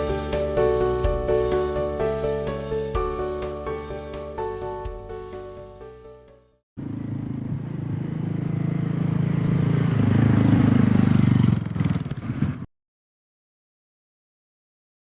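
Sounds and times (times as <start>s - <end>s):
motorcycle engine running: 6.8s - 12.7s.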